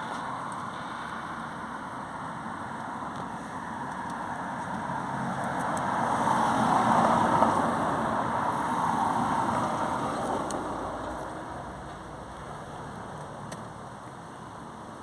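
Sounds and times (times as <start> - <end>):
road vehicle passing by: 3.4 - 13.4.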